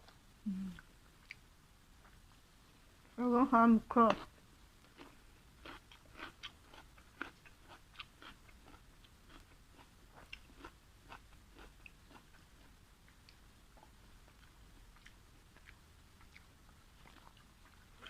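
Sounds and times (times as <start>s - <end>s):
person chewing: 4.1s - 18.0s.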